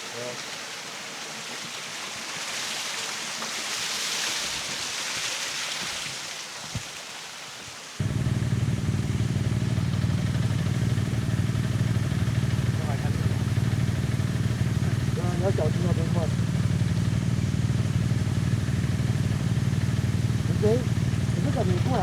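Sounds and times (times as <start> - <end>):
rushing water hiss: 0.0 - 22.0
motorcycle engine idling: 8.0 - 22.0.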